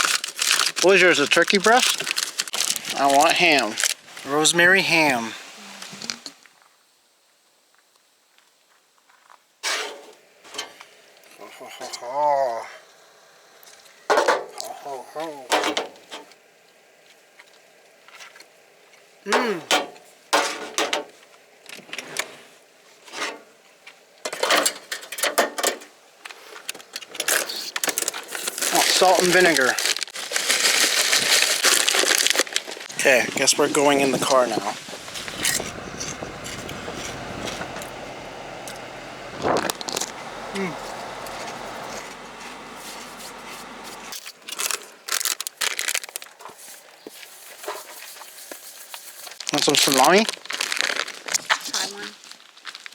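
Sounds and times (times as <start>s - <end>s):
food packaging rustling and clattering: 0.0s - 4.2s, 19.7s - 37.2s, 44.1s - 52.9s
rushing background noise: 32.9s - 44.1s.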